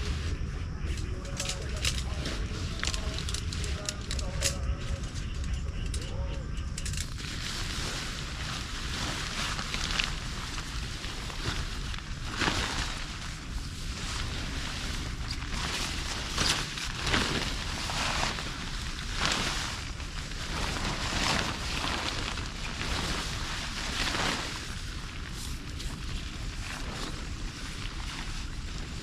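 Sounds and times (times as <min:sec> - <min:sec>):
wind rumbling on microphone: 0:00.0 - 0:29.0
steady rain: 0:06.9 - 0:29.0.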